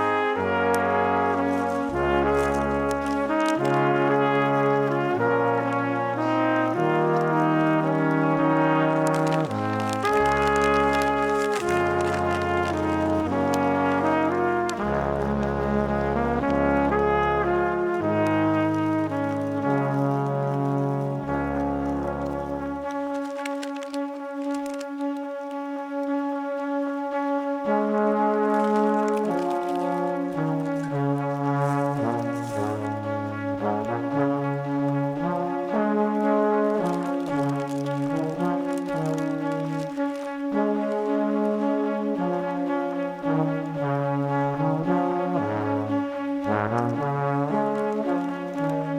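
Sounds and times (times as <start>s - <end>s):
brass music: 0.0s - 48.9s.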